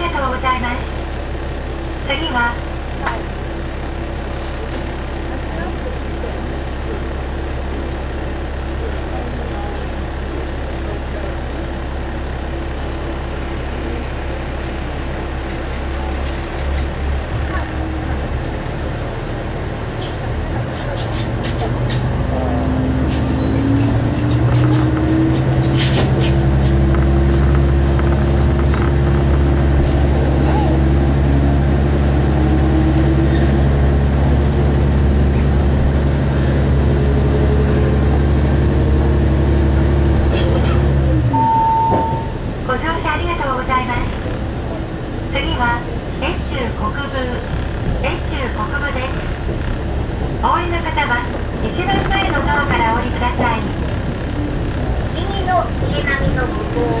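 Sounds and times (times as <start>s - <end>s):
diesel railcar engine drone: 0.0s - 57.0s
faint broken tone: 41.4s - 42.4s.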